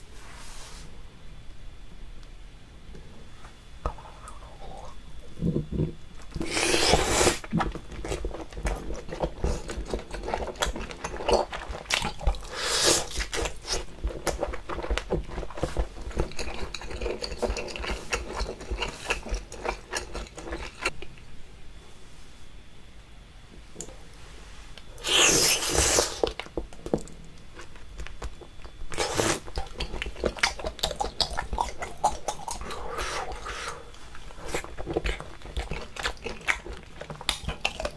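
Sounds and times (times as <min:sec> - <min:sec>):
wet chewing: 0:06.3 - 0:21.1, 0:25.0 - 0:33.5, 0:34.1 - 0:37.9.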